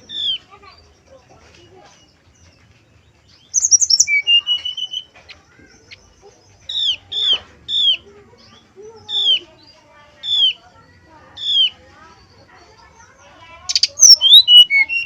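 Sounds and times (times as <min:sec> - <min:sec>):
bird singing high notes: 0:03.6 - 0:05.1.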